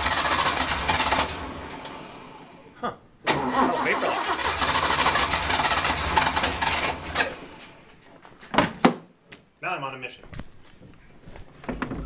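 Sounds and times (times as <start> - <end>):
engine cranking by starter: 0.0 - 2.6, 3.2 - 7.8.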